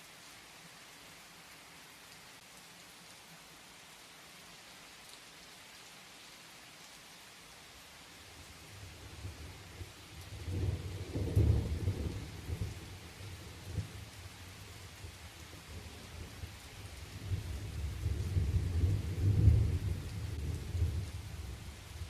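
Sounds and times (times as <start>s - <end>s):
steady rain falling: 0.0s - 22.0s
rolling thunder: 17.3s - 21.6s.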